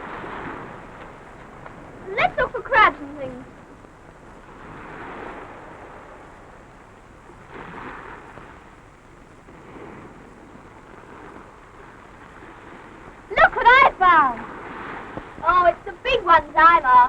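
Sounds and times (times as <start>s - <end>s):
sea waves washing onto beach: 0.0s - 17.0s.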